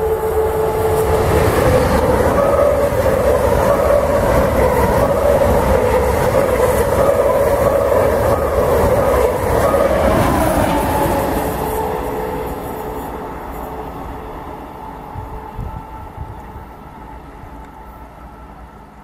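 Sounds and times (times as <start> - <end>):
high-speed train rushing past: 0.0 - 19.0.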